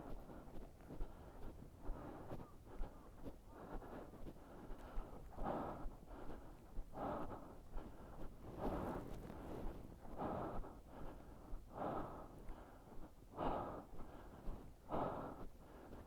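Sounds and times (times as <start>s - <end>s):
person breathing hard: 0.0s - 16.0s.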